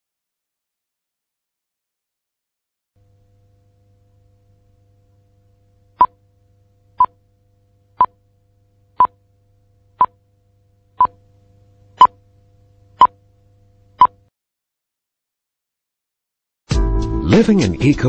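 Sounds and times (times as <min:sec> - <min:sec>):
faint low hum: 0:03.0 - 0:14.3.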